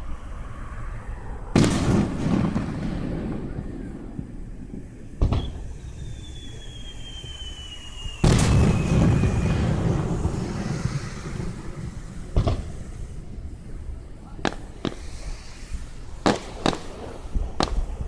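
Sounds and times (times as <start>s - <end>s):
firework bangs: 1.5s - 18.0s
firework whistle falling in pitch: 5.3s - 11.9s.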